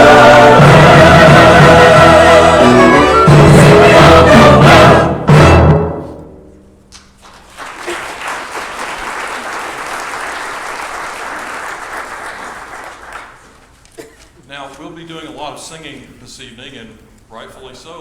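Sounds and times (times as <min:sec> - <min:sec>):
choir and orchestra final chord: 0:00.0 - 0:06.2
audience applauding: 0:07.2 - 0:13.8.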